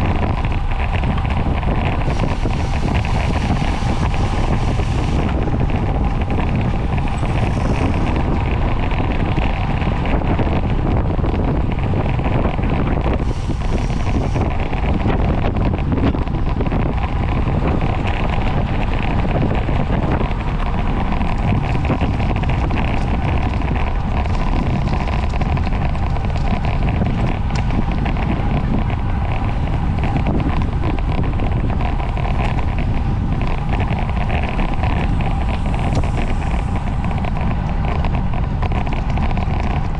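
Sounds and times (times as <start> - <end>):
low rumble: 0.0 - 39.9
wind rushing over microphone: 0.0 - 39.9.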